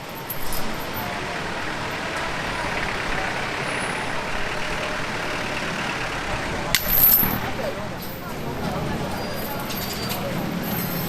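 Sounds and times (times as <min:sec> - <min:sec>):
street traffic noise: 0:00.0 - 0:11.0
vehicle engine running close by: 0:00.6 - 0:07.9.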